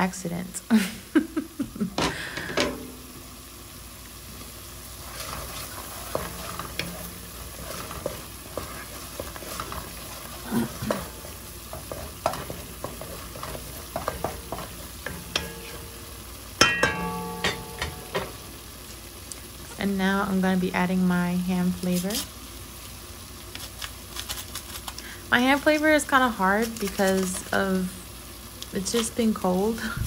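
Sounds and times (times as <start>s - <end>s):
food sizzling in a pot: 0.0s - 30.0s
utensil scraping and knocking pot: 5.0s - 18.4s.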